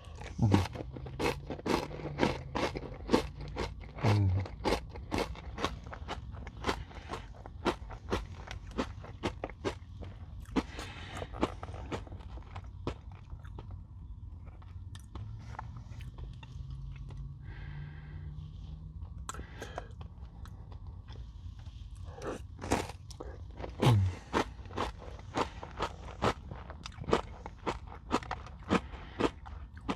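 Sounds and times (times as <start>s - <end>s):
crunching granola bar: 0.0s - 13.8s, 22.2s - 29.9s.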